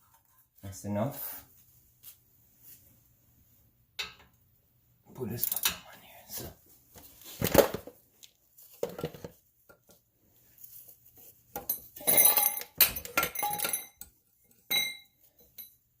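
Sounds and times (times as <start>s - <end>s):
metal tools clinking and clattering: 5.4s - 5.8s, 11.6s - 15.8s.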